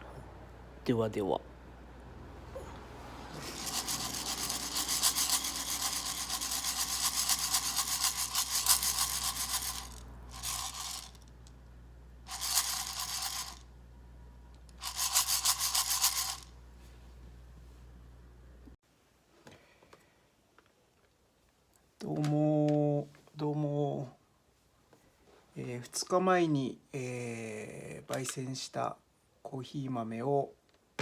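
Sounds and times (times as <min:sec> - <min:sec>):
coffee beans rattling when shaken: 0:03.3 - 0:11.5, 0:12.3 - 0:13.7, 0:14.7 - 0:16.6.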